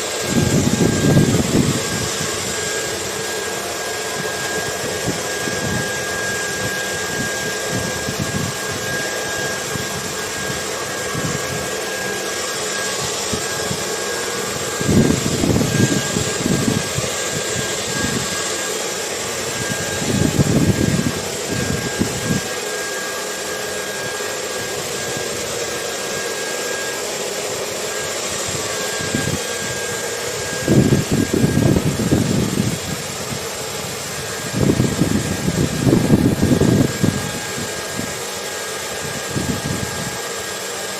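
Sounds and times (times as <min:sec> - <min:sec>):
hair dryer blowing: 0:00.0 - 0:40.9
wind gusts rumbling: 0:34.4 - 0:37.7.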